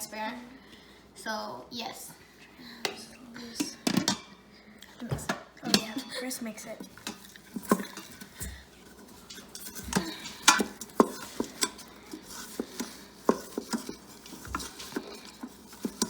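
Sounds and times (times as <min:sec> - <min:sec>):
spoon scraping and clinking pot: 0:06.9 - 0:16.0.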